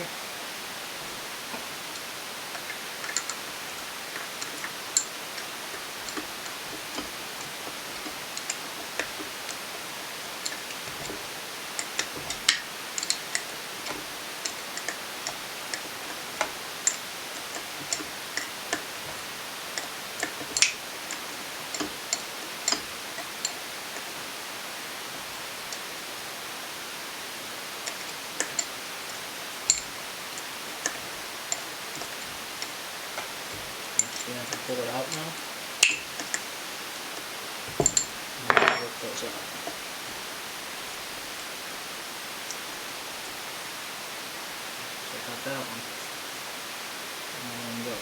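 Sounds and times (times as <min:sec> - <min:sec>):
steady background hiss: 0:00.0 - 0:48.0
hand tools clinking on metal: 0:29.7 - 0:36.4, 0:37.7 - 0:39.4.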